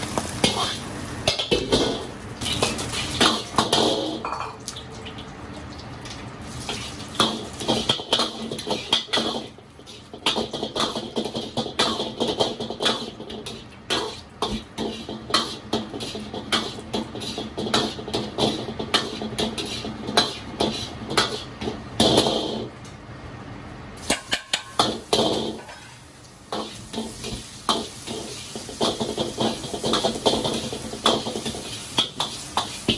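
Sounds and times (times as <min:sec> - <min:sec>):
metal cookware clanking: 0:00.4 - 0:04.6, 0:24.0 - 0:32.9.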